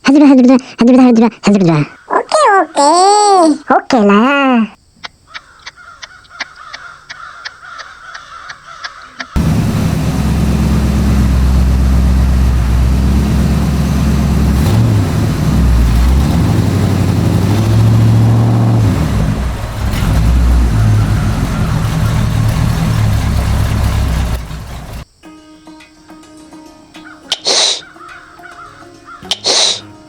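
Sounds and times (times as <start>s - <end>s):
tractor engine running: 9.4s - 25.0s.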